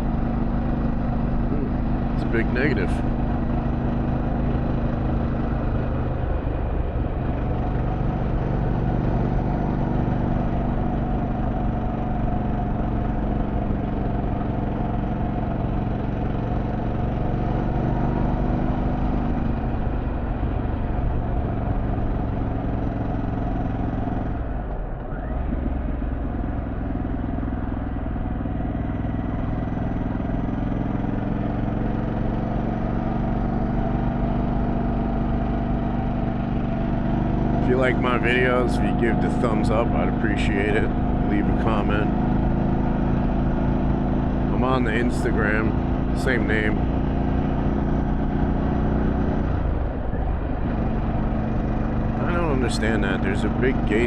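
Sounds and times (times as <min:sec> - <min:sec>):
motorcycle engine running: 0:00.0 - 0:54.0
road and wind noise: 0:00.0 - 0:54.0.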